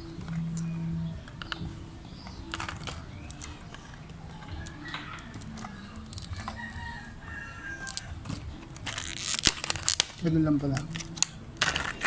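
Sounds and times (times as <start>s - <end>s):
packaging being torn open: 7.8s - 12.0s.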